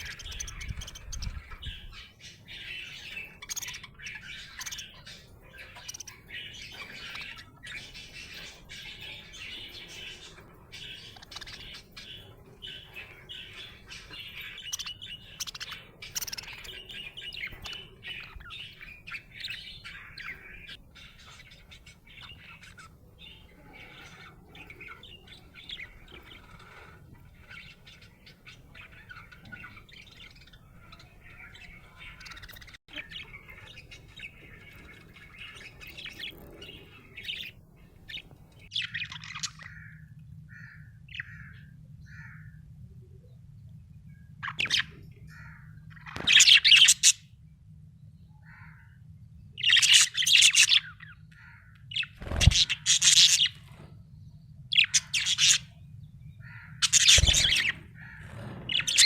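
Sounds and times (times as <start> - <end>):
budgerigar chirping: 0.0 - 10.1, 10.8 - 39.9
faint low hum: 0.0 - 59.0.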